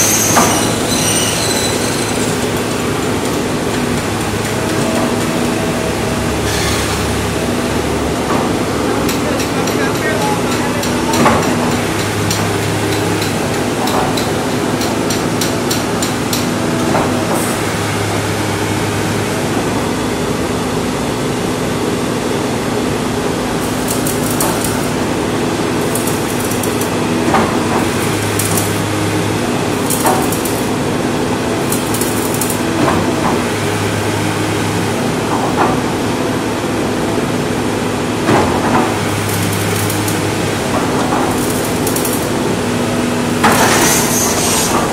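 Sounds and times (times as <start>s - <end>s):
excavator running: 0.0s - 44.9s.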